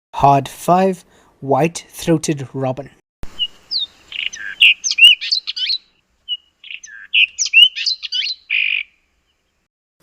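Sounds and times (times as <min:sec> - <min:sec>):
robin-chat whistled song: 0:03.4 - 0:09.0.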